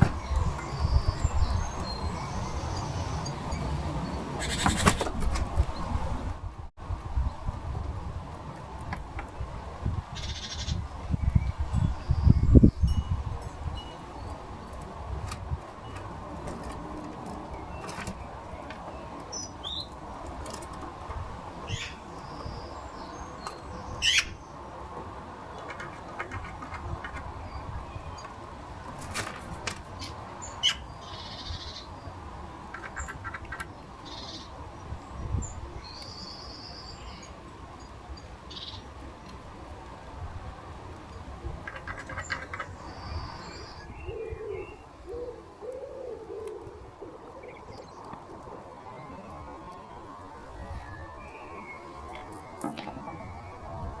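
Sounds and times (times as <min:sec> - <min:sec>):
small birds chirping: 0:00.0 - 0:05.1, 0:17.2 - 0:20.8, 0:21.4 - 0:24.7, 0:29.9 - 0:39.4, 0:41.0 - 0:53.9
quick sweeping bird call: 0:04.4 - 0:05.1.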